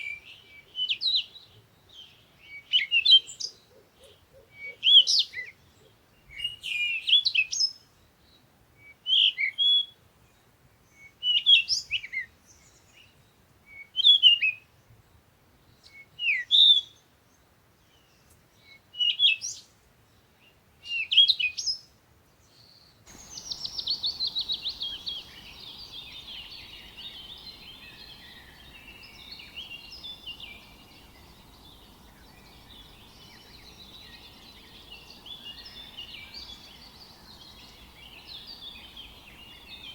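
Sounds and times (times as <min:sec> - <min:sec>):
low steady hiss: 0:00.0 - 0:39.9
songbird chirping phrase: 0:22.6 - 0:39.9
chorus of small birds chirping: 0:23.1 - 0:39.9.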